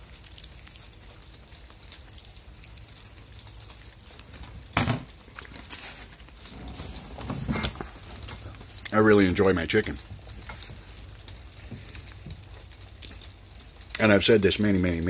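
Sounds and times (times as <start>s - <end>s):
person chewing: 0.0s - 6.7s, 10.6s - 14.0s.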